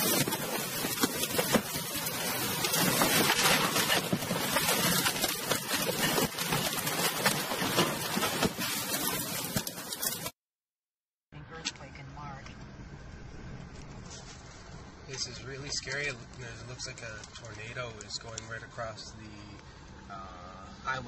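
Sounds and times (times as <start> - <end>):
heavy rain beating on a car: 0.0 - 10.3.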